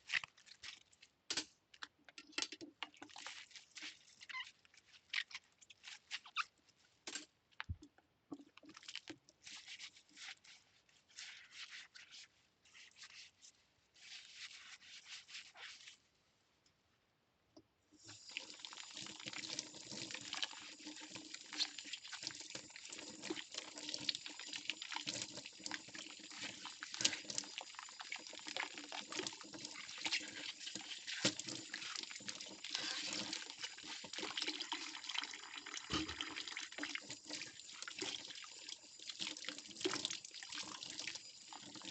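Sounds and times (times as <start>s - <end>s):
faucet water running: 18.0s - 41.9s
cutlery scrubbing: 32.7s - 34.0s.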